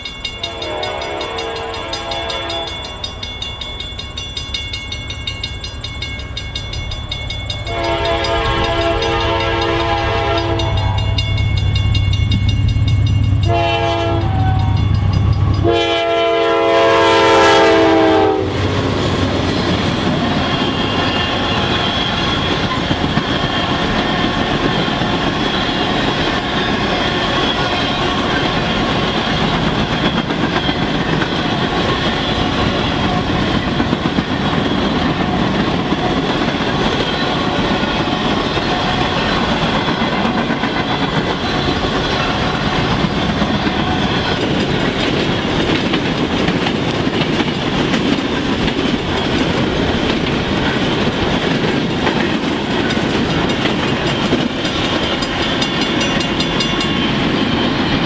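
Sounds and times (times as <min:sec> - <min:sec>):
locomotive horn blasts: 0:00.4 - 0:02.8, 0:07.7 - 0:11.2, 0:13.4 - 0:14.8, 0:15.6 - 0:18.7
locomotive engines rumbling: 0:05.0 - 0:58.0
train wheels clacking over rail joints: 0:19.5 - 0:58.0.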